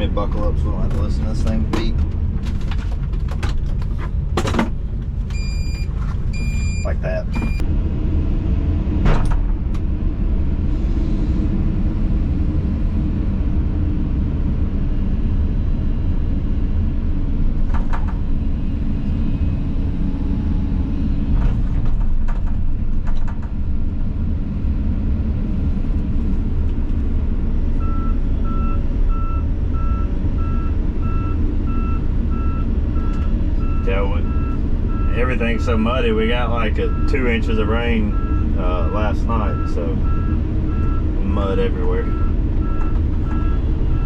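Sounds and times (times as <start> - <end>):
diesel engine running: 0.0 - 44.0
travel alarm beeping: 5.3 - 7.6, 27.8 - 35.8, 36.8 - 37.4, 38.0 - 44.0.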